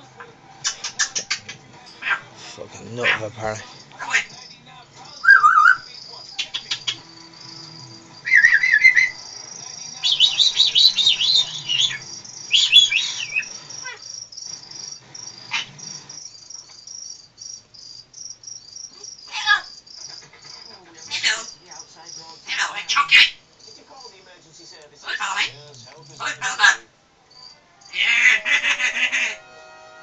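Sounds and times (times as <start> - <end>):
parrot whistling and warbling: 0.6 - 2.2, 5.2 - 7.0, 8.2 - 9.2, 10.1 - 14.0
high repeated chirping: 2.8 - 17.6.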